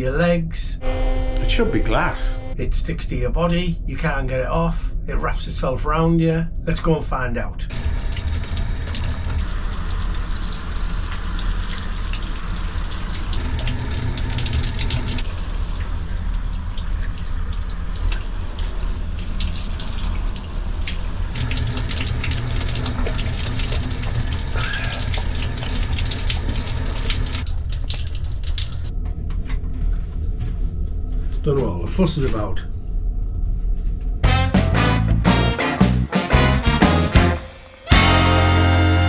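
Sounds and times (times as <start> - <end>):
shower water spraying: 7.7 - 28.9, 36.2 - 39.0.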